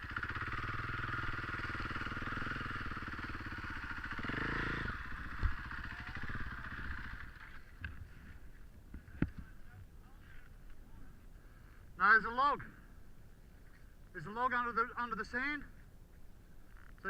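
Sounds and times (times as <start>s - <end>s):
dirt bike engine revving: 0.0s - 7.7s.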